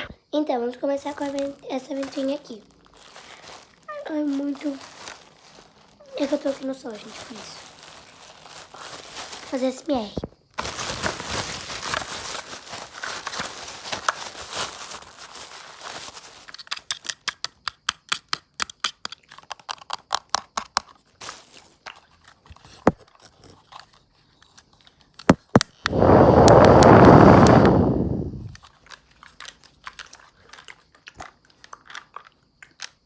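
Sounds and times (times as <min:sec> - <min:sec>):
packaging crinkling and tearing: 0:01.0 - 0:17.2, 0:20.8 - 0:25.1
loud rushing noise: 0:25.9 - 0:28.6.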